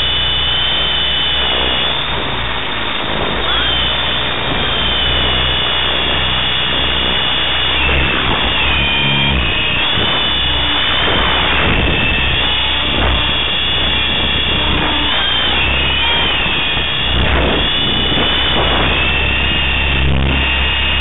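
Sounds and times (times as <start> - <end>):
electric motor whine: 0.0 - 21.0
helicopter rotors chopping: 0.0 - 21.0.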